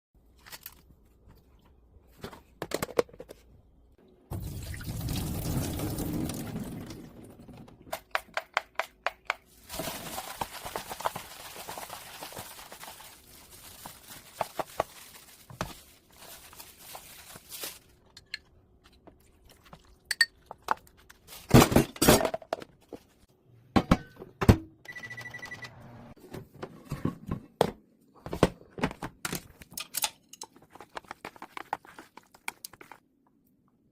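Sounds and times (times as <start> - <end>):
water poured into plastic container: 4.3 - 7.5
short steady beep: 24.9 - 25.8.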